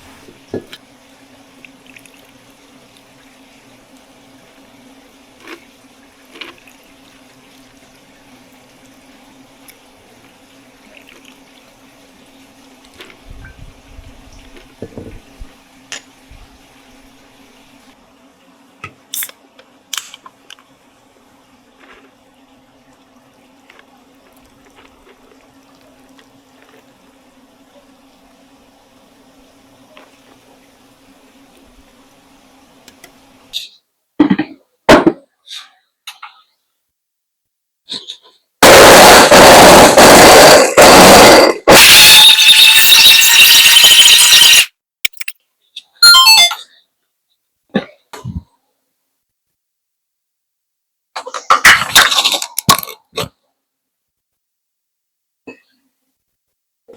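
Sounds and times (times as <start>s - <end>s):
electric blender running: 38.6s - 44.4s.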